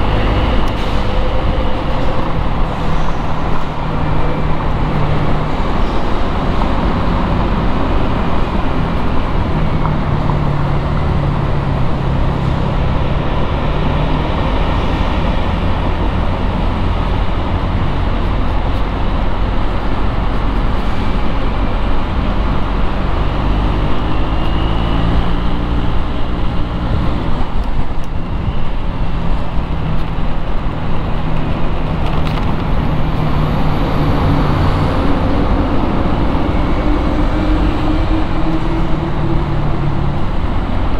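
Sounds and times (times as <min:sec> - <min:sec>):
traffic engine rumble: 0:00.0 - 0:40.9.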